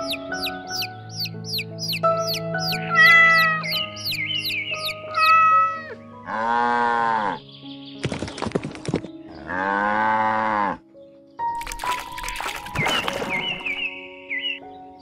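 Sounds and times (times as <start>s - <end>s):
bird chirps: 0.0s - 5.4s, 11.7s - 15.0s
soft background music: 0.0s - 15.0s
cow mooing: 6.2s - 7.4s, 9.4s - 10.8s.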